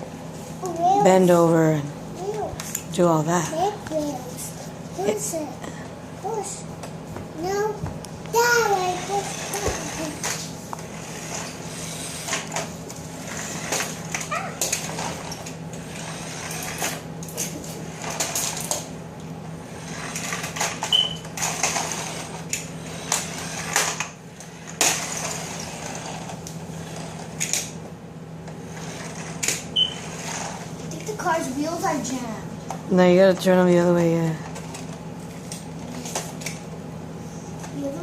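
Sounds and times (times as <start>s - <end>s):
steady low hum: 0.0s - 38.0s
plastic toy cars clattering: 16.4s - 18.9s, 20.0s - 24.1s.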